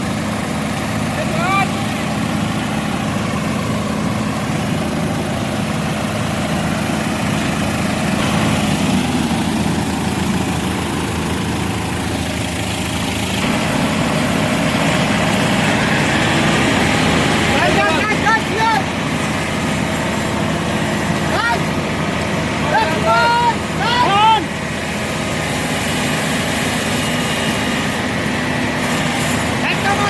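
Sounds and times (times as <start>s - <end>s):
tractor diesel engine idling: 0.0s - 30.0s.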